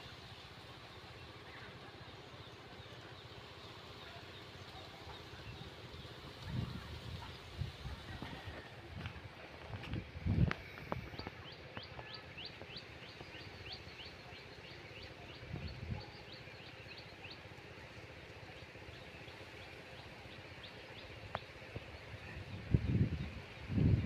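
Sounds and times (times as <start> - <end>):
outdoor background noise: 0.0 - 24.0
bird chirping: 10.6 - 23.4.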